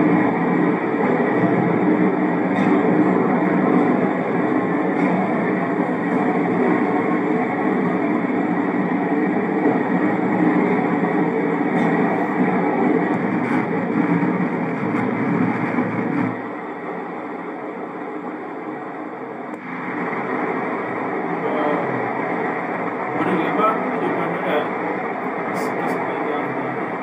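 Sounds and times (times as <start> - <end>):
train rumbling through tunnel: 0.0 - 27.0.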